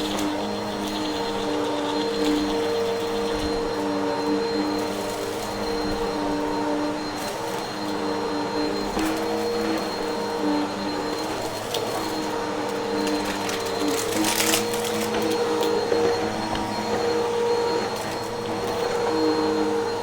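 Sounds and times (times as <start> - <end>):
vacuum cleaner motor hum: 0.0 - 20.0.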